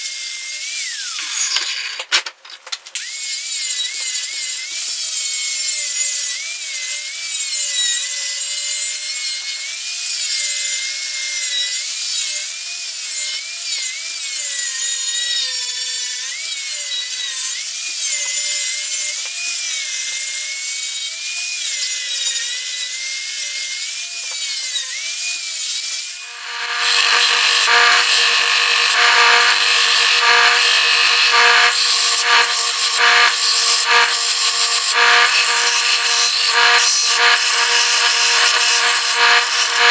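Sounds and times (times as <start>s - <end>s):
power tool working wood: 0.0s - 2.1s, 3.0s - 39.9s
steady machine sound: 26.2s - 39.9s.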